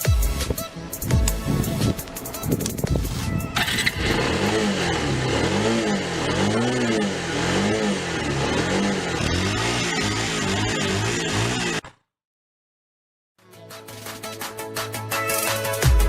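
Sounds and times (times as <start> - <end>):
music: 0.0 - 4.0, 13.4 - 16.0
motorcycle engine revving: 1.5 - 11.8.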